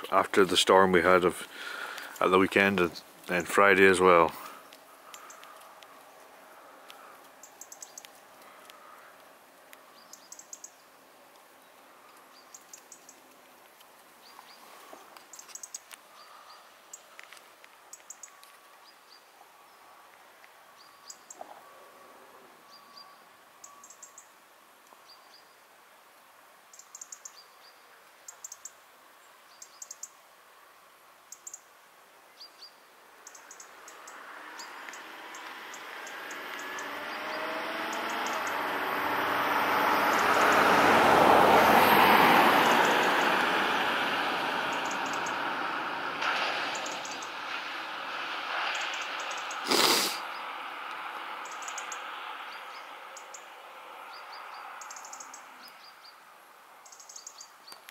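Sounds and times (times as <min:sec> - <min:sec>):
small bird chirping: 0:04.6 - 0:05.6, 0:07.4 - 0:08.3, 0:09.9 - 0:10.9, 0:12.3 - 0:13.2, 0:15.3 - 0:17.2, 0:17.9 - 0:19.3, 0:22.7 - 0:24.3, 0:26.7 - 0:28.8, 0:29.5 - 0:30.2, 0:31.3 - 0:31.7, 0:32.4 - 0:38.7, 0:51.4 - 0:53.5, 0:54.1 - 0:56.2, 0:56.8 - 0:57.9.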